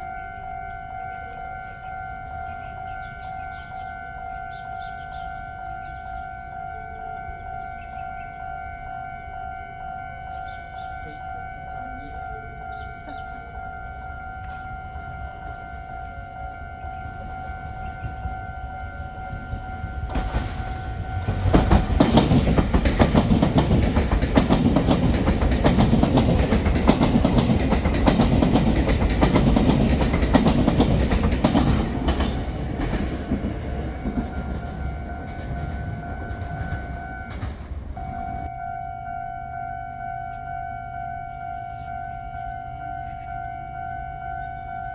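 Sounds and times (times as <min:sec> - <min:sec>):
train rushing past: 0:10.6 - 0:38.6
electronic warning tone: 0:32.9 - 0:44.9.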